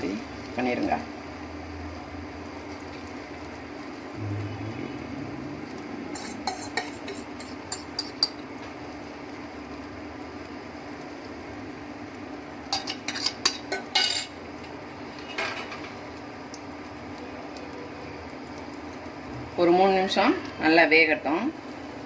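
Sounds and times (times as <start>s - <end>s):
steady low hum: 0.4s - 12.7s
spoon tapping and scraping pan: 6.1s - 8.4s, 12.7s - 14.3s.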